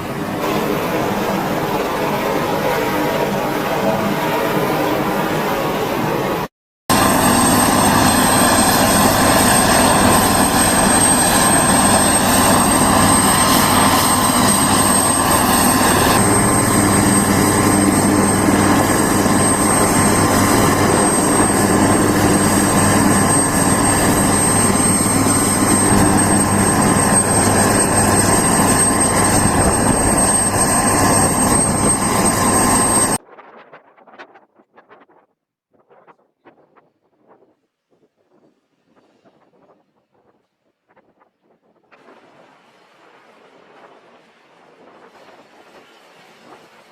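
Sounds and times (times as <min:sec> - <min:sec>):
helicopter engine and rotor: 0:00.0 - 0:33.2
high-pitched turbine whine: 0:00.0 - 0:33.2.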